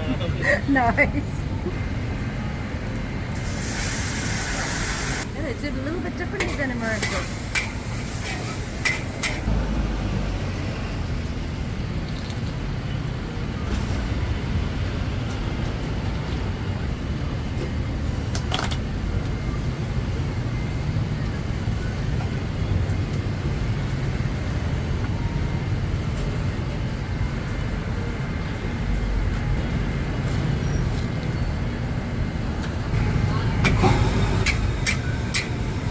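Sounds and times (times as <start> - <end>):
low rumble of street traffic: 0.0 - 35.9.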